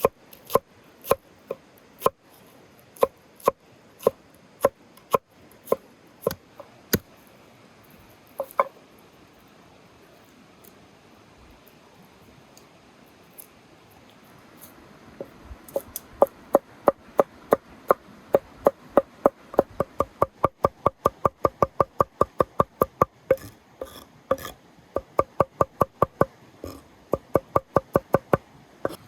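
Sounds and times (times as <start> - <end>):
knife chopping on wooden board: 3.0 - 7.0, 8.4 - 8.7, 19.2 - 26.3.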